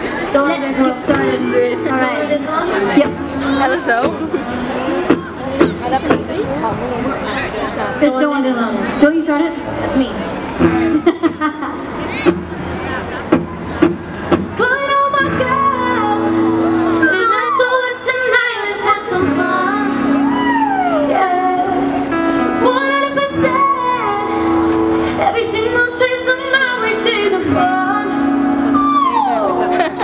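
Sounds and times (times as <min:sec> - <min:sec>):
women singing a melody: 0:14.6 - 0:30.0.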